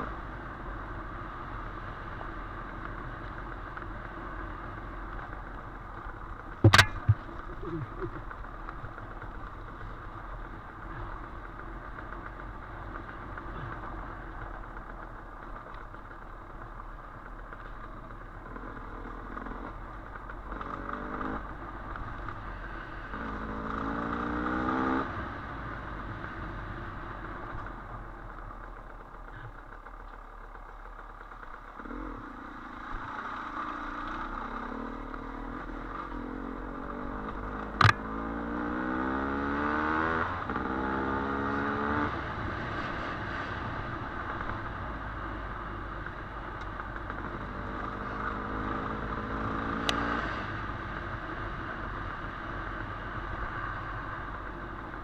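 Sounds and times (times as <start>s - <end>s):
sharp knock: 6.6s - 7.4s, 37.8s - 38.0s
dirt bike engine revving: 6.6s - 8.4s, 36.3s - 42.1s.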